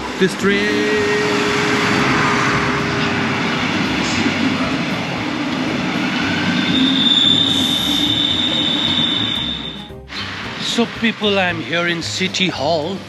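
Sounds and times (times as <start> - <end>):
high steady squeal: 0.0 - 13.0
passenger train rumbling: 0.0 - 13.0.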